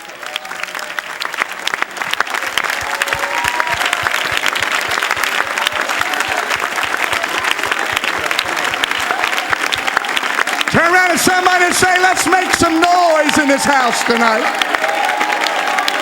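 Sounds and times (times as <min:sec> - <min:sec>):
congregation clapping and cheering: 0:00.0 - 0:16.0
voices shouting in crowd: 0:05.6 - 0:16.0.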